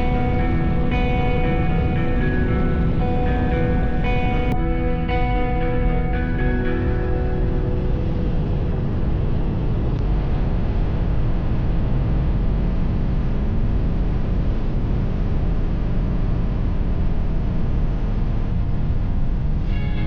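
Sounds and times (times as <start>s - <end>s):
wind roar on microphone: 0.0s - 20.0s.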